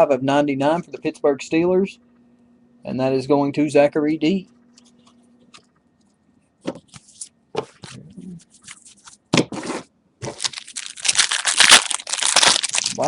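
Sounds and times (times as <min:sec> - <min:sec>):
card pack wrapper tearing: 0:10.2 - 0:13.0.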